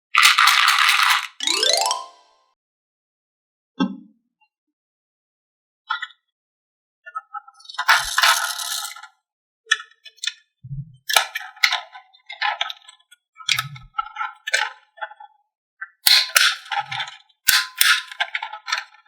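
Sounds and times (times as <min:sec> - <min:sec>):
marbles clattering down wooden track: 0:00.2 - 0:02.1, 0:07.8 - 0:09.0.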